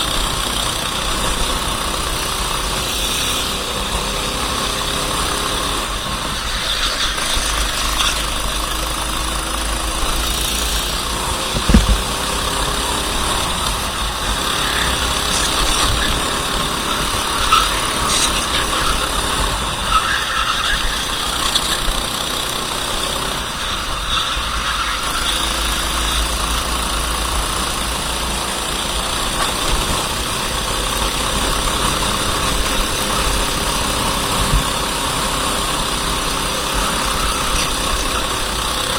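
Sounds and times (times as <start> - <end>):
kart engine idling: 0.0 - 38.9
steady rushing noise: 6.1 - 19.8
sharp thump: 11.5 - 12.4.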